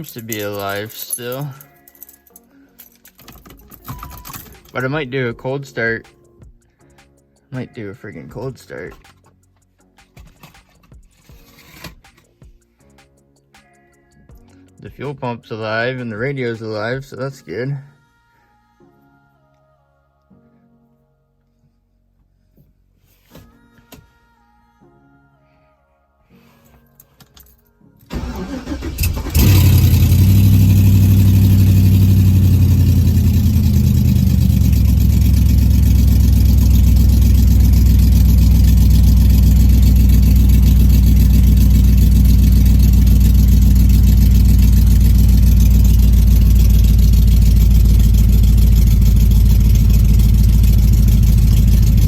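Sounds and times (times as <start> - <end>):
engine cranking: 28.1 - 52.0
engine idling: 28.1 - 52.0.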